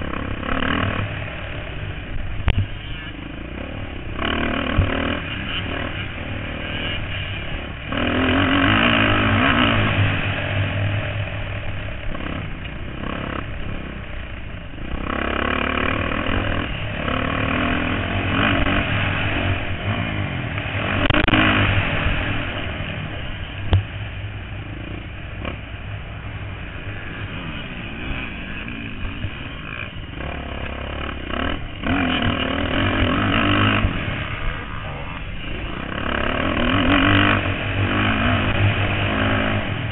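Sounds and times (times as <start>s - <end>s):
motocross bikes revving: 0.0s - 39.9s.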